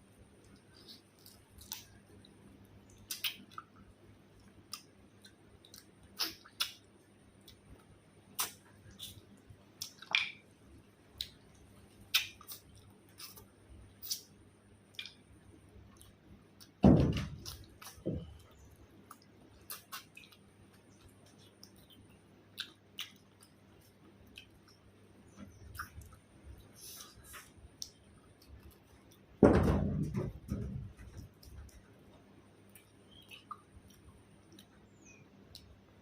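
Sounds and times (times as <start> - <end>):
wet mouth smacks chewing: 2.9 - 3.8, 4.7 - 6.9, 8.4 - 10.3, 11.2 - 14.3, 19.0 - 22.0, 22.6 - 24.8, 32.7 - 34.8.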